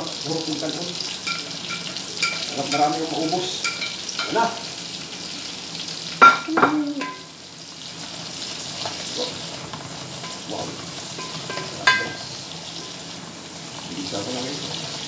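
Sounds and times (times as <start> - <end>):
vegetables sizzling in a pan: 0.0 - 15.0
utensils clattering: 1.2 - 4.5, 6.2 - 7.3, 10.1 - 13.0.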